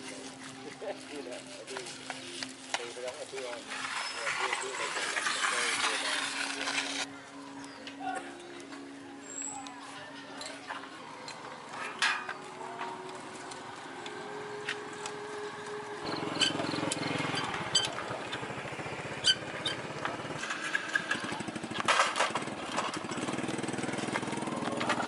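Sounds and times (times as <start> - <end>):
small engine running: 3.1 - 7.1, 13.6 - 25.0.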